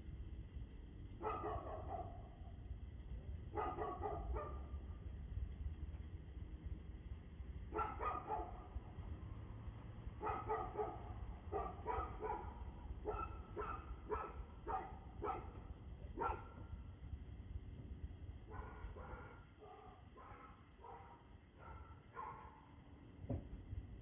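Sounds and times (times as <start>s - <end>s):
dog barking: 1.2s - 2.4s, 3.5s - 4.8s, 7.7s - 8.7s, 10.2s - 15.6s, 16.2s - 16.7s, 18.5s - 22.7s.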